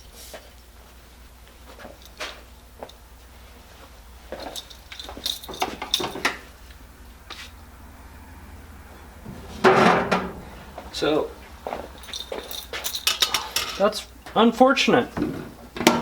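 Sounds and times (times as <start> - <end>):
metallic clicking and clatter: 12.0 - 13.8.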